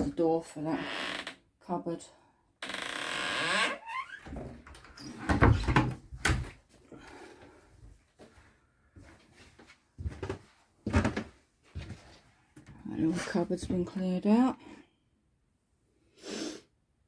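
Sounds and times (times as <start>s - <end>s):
cupboard door opening and shutting: 2.9s - 6.6s.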